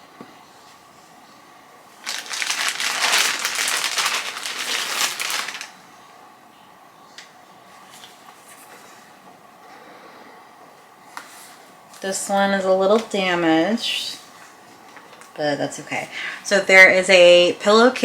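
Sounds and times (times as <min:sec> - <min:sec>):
packaging crinkling and rustling: 0:02.0 - 0:05.8.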